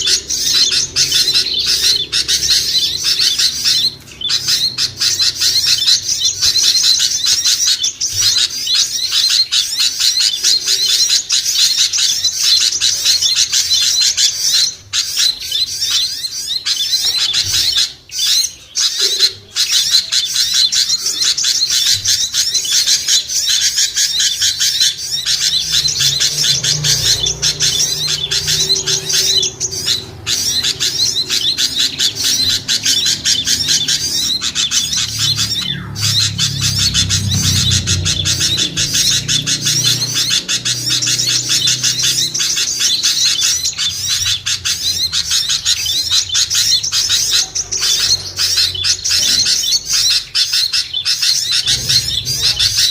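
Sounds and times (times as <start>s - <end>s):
small songbirds chirping: 0.0s - 52.9s
low hum: 51.5s - 52.9s.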